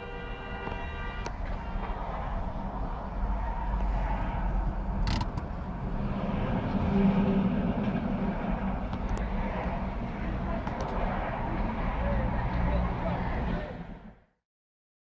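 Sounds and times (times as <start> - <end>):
vehicle road and engine noise: 0.0 - 14.3
steady multi-tone sound: 6.0 - 13.9.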